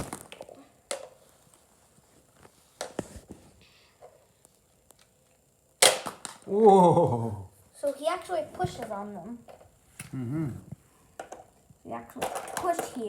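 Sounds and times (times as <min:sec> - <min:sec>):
plastic toy pieces clicking: 0:12.2 - 0:13.0.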